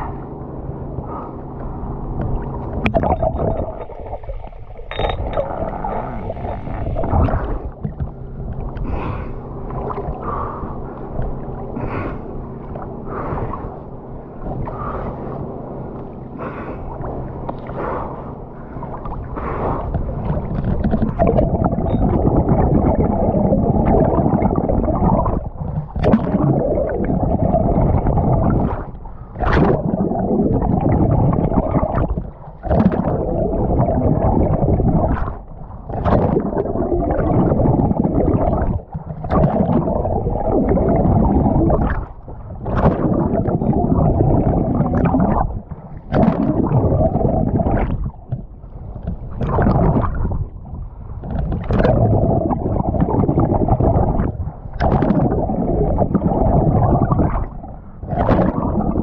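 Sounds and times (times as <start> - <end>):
muffled water rushing and gurgling: 0.0 - 59.0.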